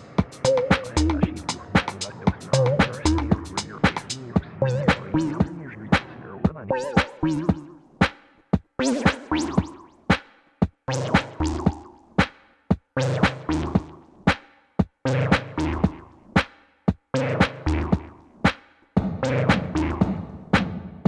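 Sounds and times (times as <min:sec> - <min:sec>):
click-like percussion hits: 0:00.0 - 0:06.1.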